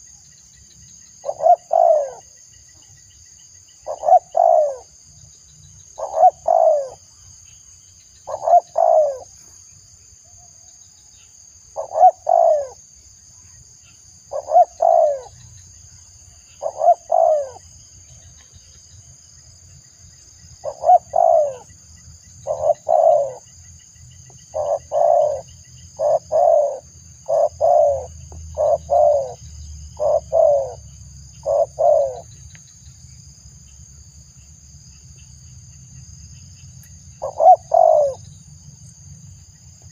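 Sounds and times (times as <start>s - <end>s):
dove cooing: 1.2s - 2.3s, 3.8s - 4.9s, 6.0s - 7.0s, 8.3s - 9.4s, 11.8s - 12.8s, 14.3s - 15.4s, 16.6s - 17.6s, 20.6s - 21.7s, 22.4s - 23.4s, 24.5s - 29.4s, 30.0s - 30.8s, 31.4s - 32.3s, 37.2s - 38.2s.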